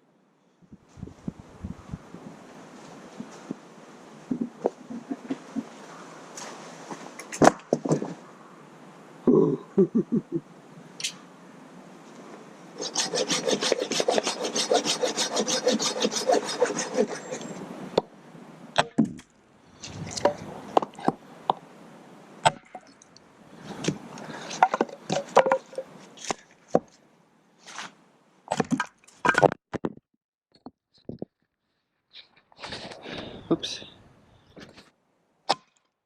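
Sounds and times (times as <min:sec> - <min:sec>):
hand saw cutting wood: 0:12.8 - 0:17.6.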